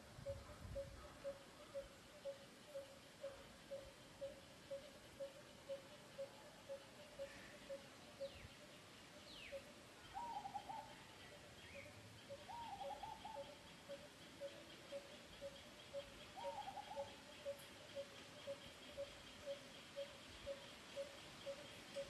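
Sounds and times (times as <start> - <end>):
bird warbling trills: 9.2 - 22.0.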